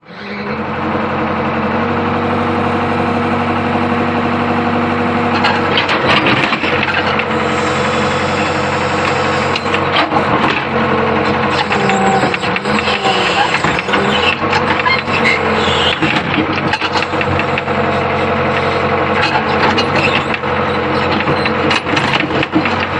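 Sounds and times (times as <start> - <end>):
excavator diesel engine running: 0.0 - 22.9
clanking and knocks: 5.3 - 7.3, 9.5 - 17.7, 19.2 - 22.9.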